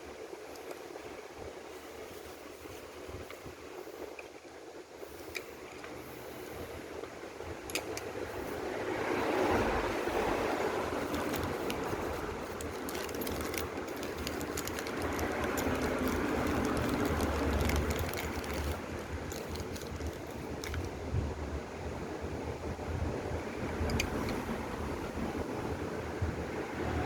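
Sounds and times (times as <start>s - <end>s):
monorail cart rumbling: 6.9s - 27.0s.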